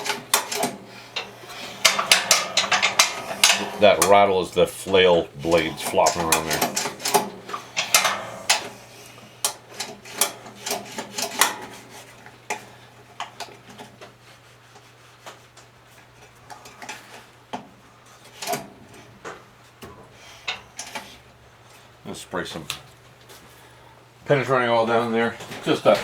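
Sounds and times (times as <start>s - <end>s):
loose blades rattling in housing: 0.0s - 13.6s.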